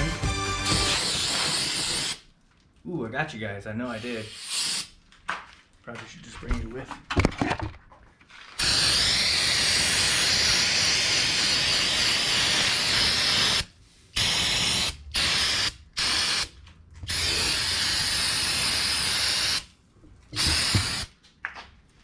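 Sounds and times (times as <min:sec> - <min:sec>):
aerosol cleaner spraying: 0:00.8 - 0:02.2, 0:04.0 - 0:04.9, 0:08.6 - 0:16.5, 0:17.1 - 0:19.7, 0:20.4 - 0:21.1.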